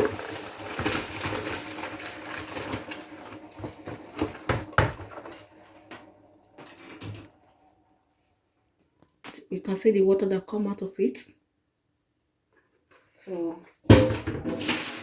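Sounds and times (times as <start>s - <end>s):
liquid pouring into a strainer: 0.0s - 6.7s
pot knocking and scraping: 3.6s - 5.4s, 13.9s - 15.0s.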